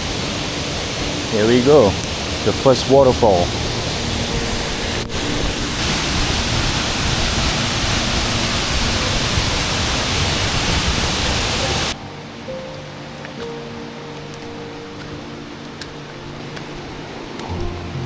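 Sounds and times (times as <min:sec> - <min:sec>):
background music with held notes: 0:00.0 - 0:18.0
waterfall rushing: 0:00.0 - 0:18.0.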